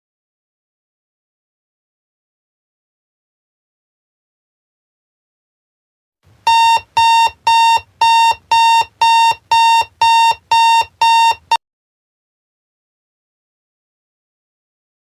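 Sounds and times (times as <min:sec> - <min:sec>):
alarm clock beeping: 0:06.5 - 0:11.6.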